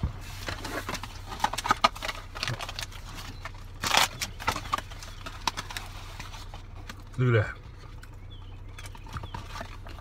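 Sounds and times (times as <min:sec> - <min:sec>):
chewing with lip-smacks: 0:03.0 - 0:10.0.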